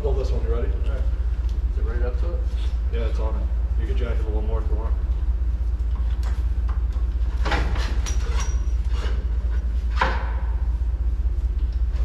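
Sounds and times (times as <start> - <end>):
low rumble: 8.8 - 12.0.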